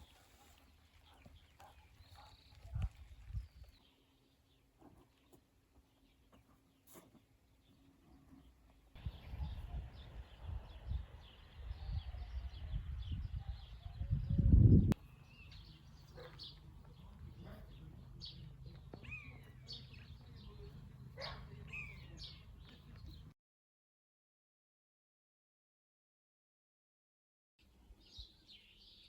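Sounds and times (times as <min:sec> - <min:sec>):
small birds chirping: 0:00.0 - 0:23.3, 0:27.6 - 0:29.0
low rumble on microphone: 0:09.0 - 0:15.0.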